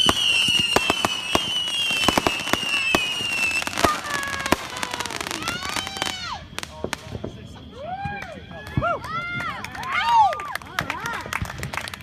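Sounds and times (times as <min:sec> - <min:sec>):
shrill falling firework whistles: 0:00.0 - 0:10.3
firework pops and crackles: 0:00.0 - 0:12.0.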